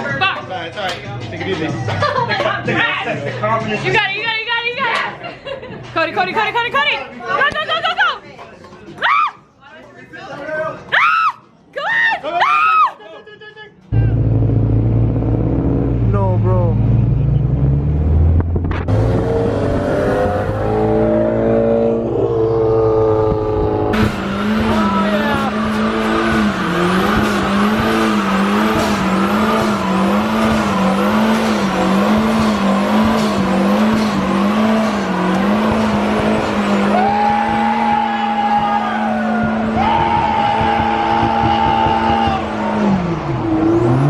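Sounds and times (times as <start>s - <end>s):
car engine revving: 13.9s - 44.0s.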